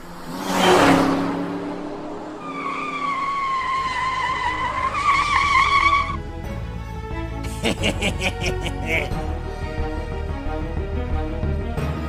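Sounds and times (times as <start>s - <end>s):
cartoon tyres screeching: 2.4s - 6.2s
background music: 4.8s - 12.0s.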